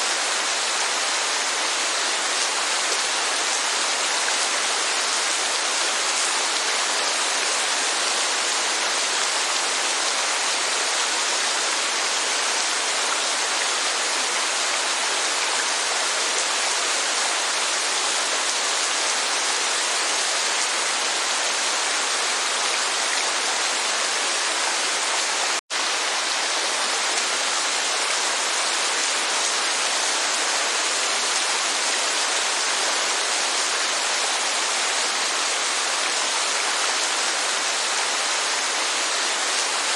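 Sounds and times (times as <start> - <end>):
rain and waterfall rushing: 0.0 - 39.9.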